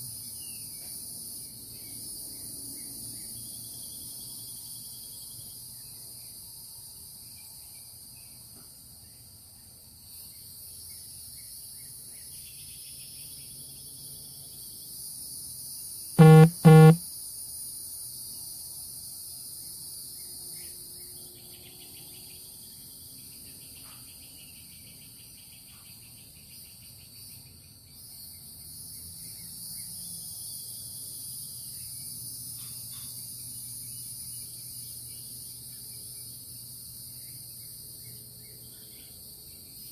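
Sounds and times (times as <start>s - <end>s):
loud pitched beeps: 16.2s - 17.0s.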